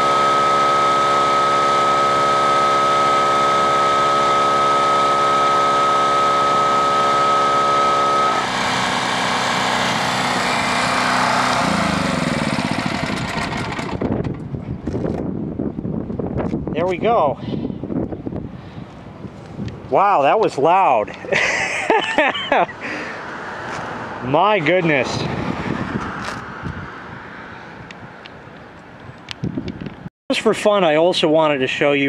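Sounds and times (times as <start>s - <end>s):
air compressor engine whining: 0.0s - 15.3s.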